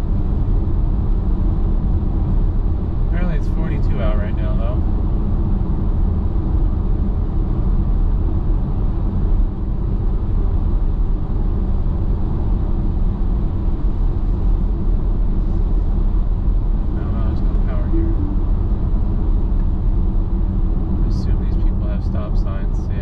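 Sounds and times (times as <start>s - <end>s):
tyre and road noise in car cabin: 0.0s - 23.0s.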